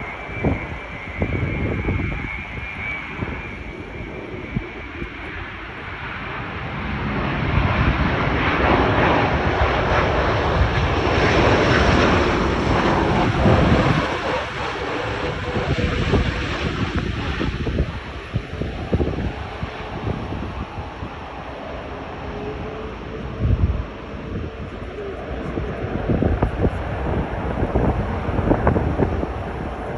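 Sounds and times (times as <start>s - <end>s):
jet engines of passing airliner: 0.0s - 29.9s
wind on microphone: 0.0s - 29.9s.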